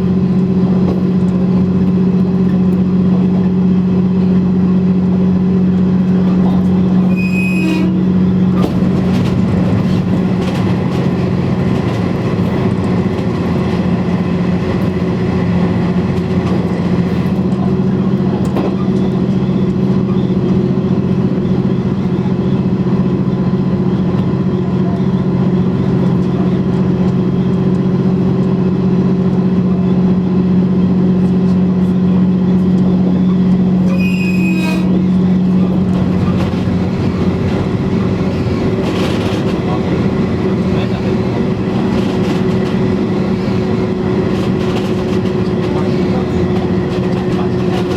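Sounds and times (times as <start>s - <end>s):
railcar diesel engine running: 0.0s - 47.9s
wheels rumbling on rails: 0.0s - 47.9s.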